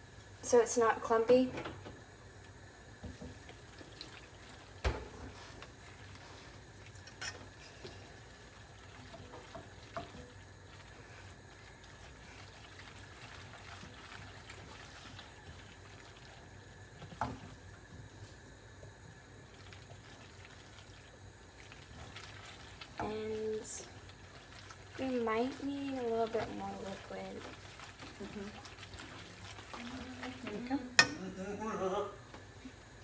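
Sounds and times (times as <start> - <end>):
wet stirring of pasta in sauce: 3.0 - 18.2, 19.2 - 31.3
spoon knocking against pot: 31.0 - 31.2.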